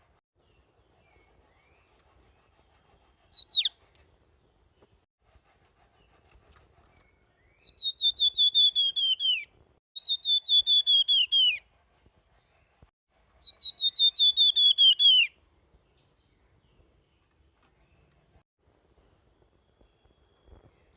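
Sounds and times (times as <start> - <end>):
songbird whistling: 3.3 - 3.8, 7.4 - 11.6, 13.4 - 15.4.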